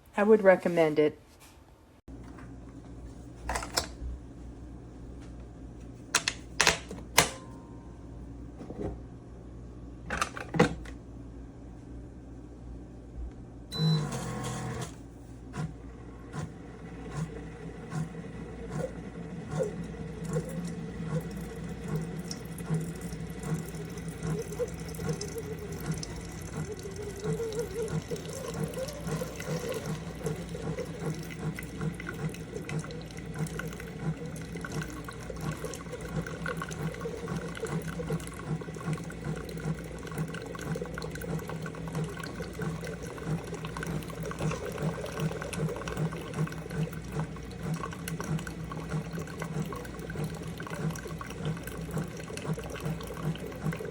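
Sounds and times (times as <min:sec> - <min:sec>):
coffee maker pump pulsing: 0:13.7 - 0:53.9.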